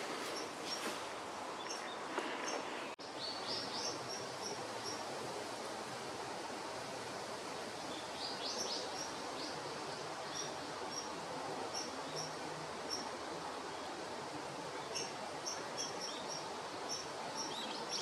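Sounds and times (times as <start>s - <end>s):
small birds chirping: 0.0s - 5.1s
outdoor background hiss: 0.0s - 18.0s.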